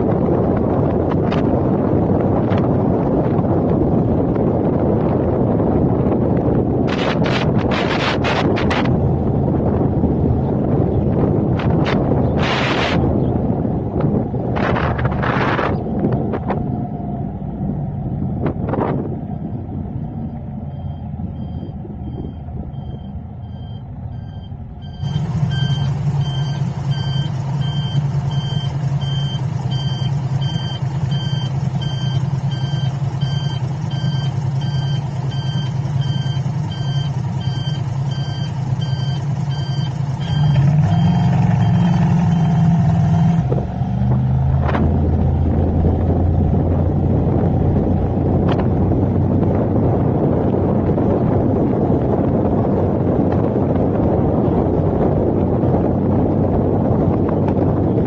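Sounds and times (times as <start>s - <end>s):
road and wind noise: 0.0s - 58.0s
vehicle engine hum: 0.0s - 58.0s
rapid electronic beeping: 20.8s - 42.7s.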